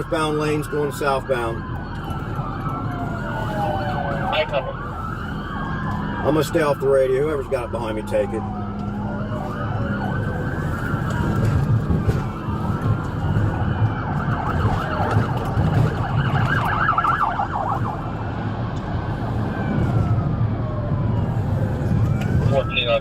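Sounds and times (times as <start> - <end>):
engine and road rumble: 0.0 - 23.0
police siren wailing: 0.0 - 23.0.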